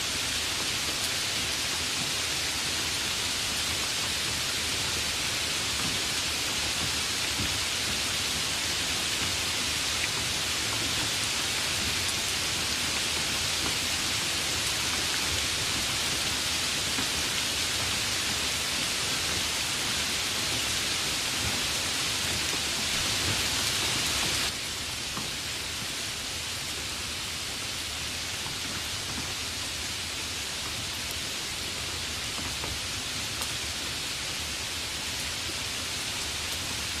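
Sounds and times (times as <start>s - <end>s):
steady rain hiss: 0.0s - 37.0s.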